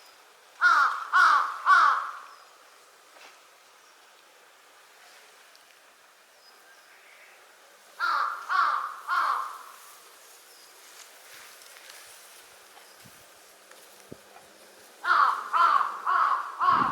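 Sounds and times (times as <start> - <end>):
crow cawing: 0.6 - 2.3, 8.0 - 9.8, 15.0 - 16.9.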